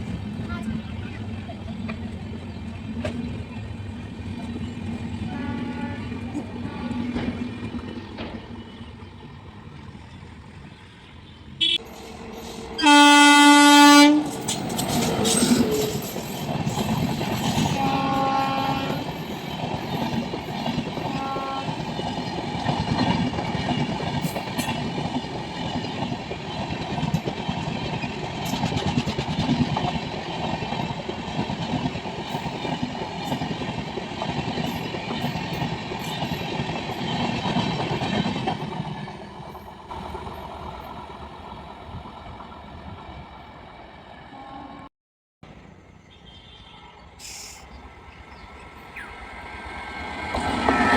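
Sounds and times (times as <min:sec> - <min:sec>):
train rumble and wheel clatter: 0:00.0 - 0:44.8, 0:46.8 - 0:50.9
train horn blast: 0:05.2 - 0:07.3, 0:11.6 - 0:11.9, 0:12.8 - 0:14.5, 0:17.6 - 0:19.2, 0:21.0 - 0:21.9, 0:44.3 - 0:44.9, 0:50.4 - 0:50.9.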